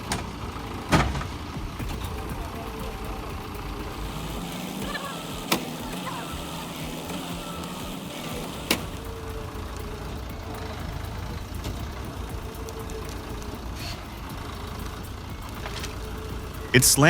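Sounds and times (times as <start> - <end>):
heavy vehicle engine rumbling: 0.0 - 17.0.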